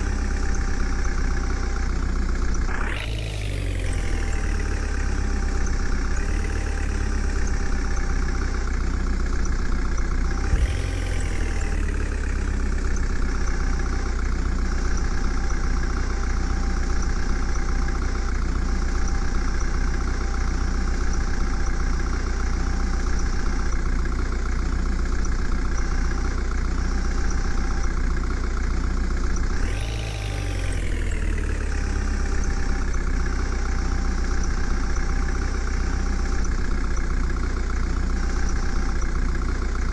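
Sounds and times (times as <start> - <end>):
heavy diesel engine idling: 0.0 - 39.9.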